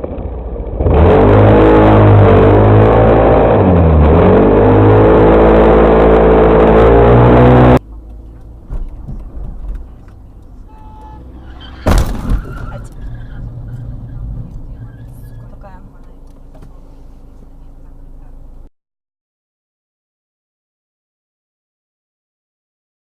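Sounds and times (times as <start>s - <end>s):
vehicle engine running hard: 0.0s - 11.9s
road noise: 0.0s - 18.7s
loud bang: 11.6s - 15.1s.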